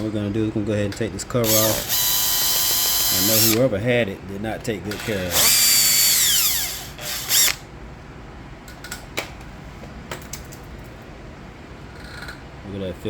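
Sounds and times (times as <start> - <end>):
cordless drill whining: 1.4 - 3.6, 4.9 - 7.6.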